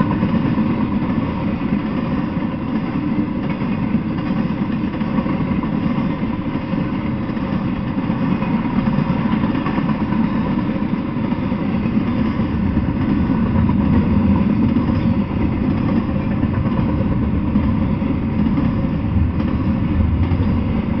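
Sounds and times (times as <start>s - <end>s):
freight train wheels rumbling: 0.0s - 21.0s.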